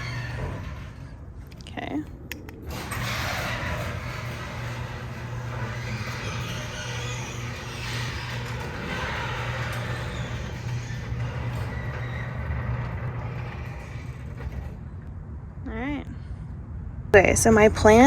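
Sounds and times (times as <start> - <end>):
garage door opener motor humming: 0.0 - 1.4, 2.5 - 15.0.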